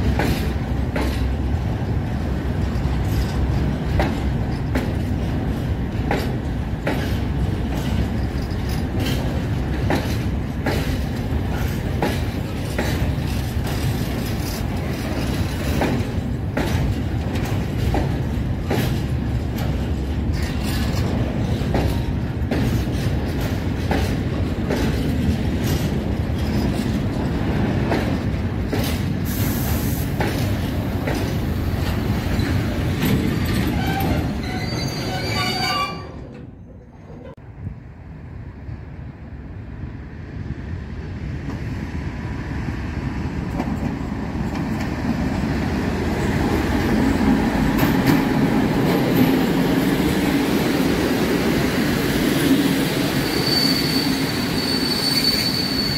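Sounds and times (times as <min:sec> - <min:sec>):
train wheels clicking on rail joints: 0:00.0 - 0:37.4, 0:43.0 - 0:55.9
freight train rumbling: 0:00.0 - 0:55.9.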